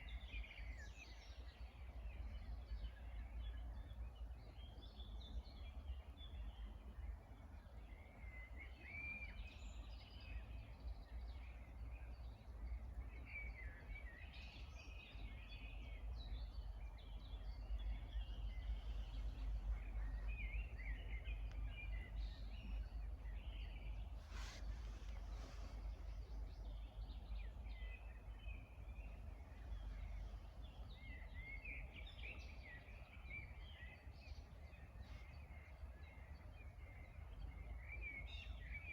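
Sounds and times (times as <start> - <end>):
songbirds chirping and singing: 0.0 - 38.9
steady low rumble: 14.6 - 37.9
brief rustle: 24.2 - 26.1.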